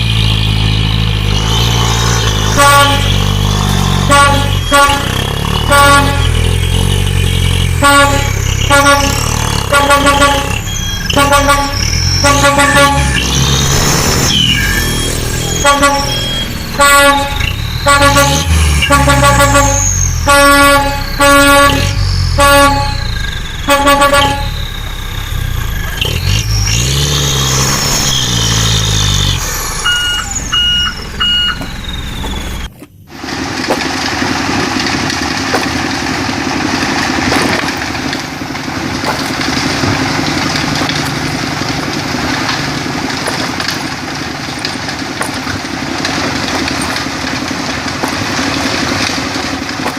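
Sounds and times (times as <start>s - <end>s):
engine running: 0.0s - 49.9s
vehicle horn blasts: 2.5s - 3.2s, 4.0s - 7.0s, 7.7s - 13.3s, 15.5s - 24.6s
quick high-pitched beeps: 29.8s - 32.7s.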